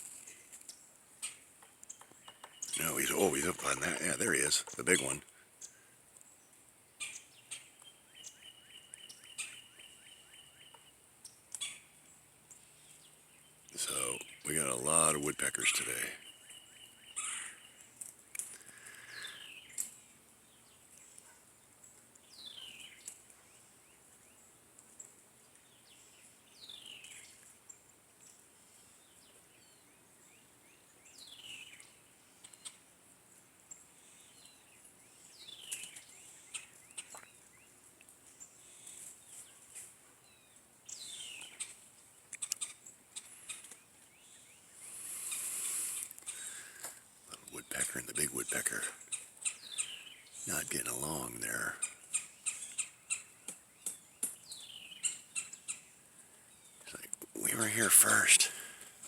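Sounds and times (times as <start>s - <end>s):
steady high hiss: 44.6s - 48.8s.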